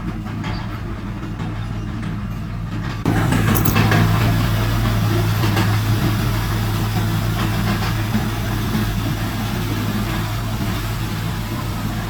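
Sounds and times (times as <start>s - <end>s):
heavy diesel engine running: 4.4s - 12.0s.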